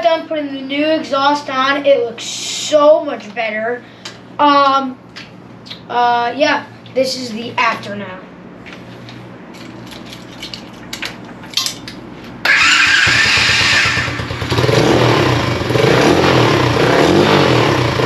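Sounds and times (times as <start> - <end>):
motorbike engine revving: 12.4 - 18.0.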